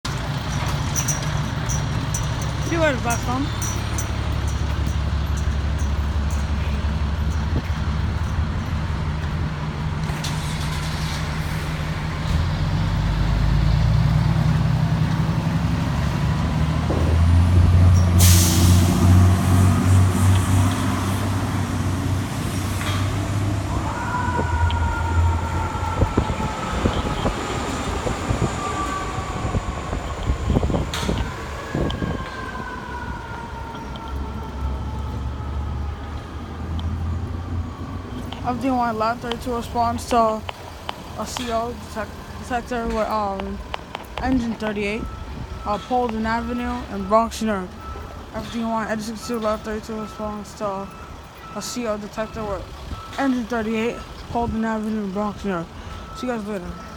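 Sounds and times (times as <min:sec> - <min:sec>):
diesel engine revving: 0:00.1 - 0:56.9
air brakes hissing: 0:17.8 - 0:21.5
siren: 0:22.4 - 0:40.0.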